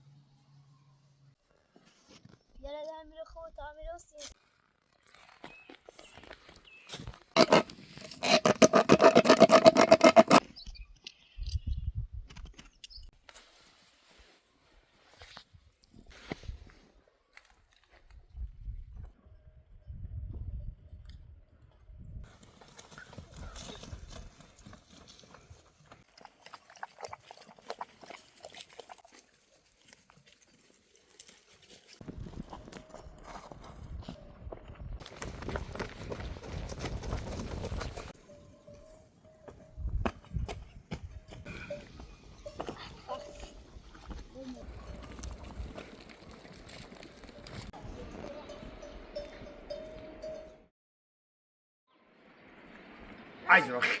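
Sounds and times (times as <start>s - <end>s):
hooves clopping: 7.4s - 10.4s, 22.2s - 50.4s.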